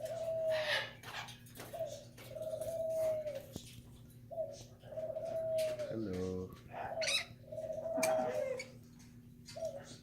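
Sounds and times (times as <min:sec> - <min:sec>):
bird hooting: 0:00.0 - 0:01.0, 0:01.7 - 0:03.5, 0:04.3 - 0:06.1, 0:06.7 - 0:08.8, 0:09.5 - 0:10.0.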